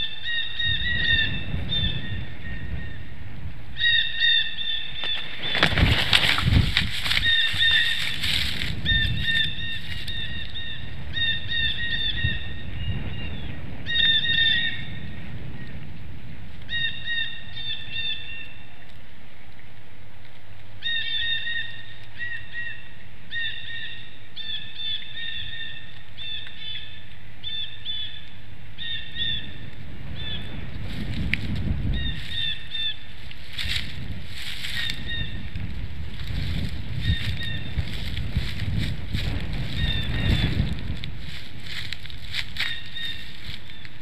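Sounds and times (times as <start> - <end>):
wind rumble on microphone: 0.0 - 44.0
small bird calls: 3.8 - 15.1, 41.6 - 44.0.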